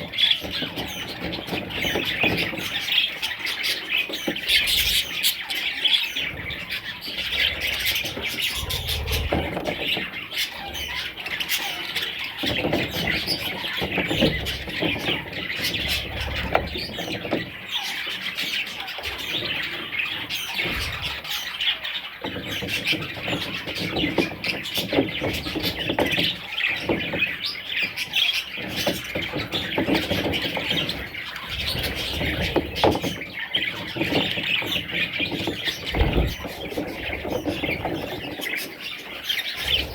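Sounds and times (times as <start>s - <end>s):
budgerigars chirping and squawking: 0.0s - 39.9s
low rumbling: 8.5s - 9.6s, 35.9s - 36.5s.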